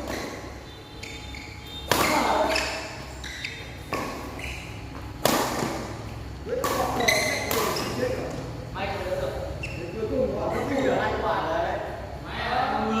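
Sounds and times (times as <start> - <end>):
racket hitting shuttlecock: 0.0 - 0.6, 1.8 - 8.4
court shoes squeaking: 0.0 - 8.7, 9.3 - 10.2.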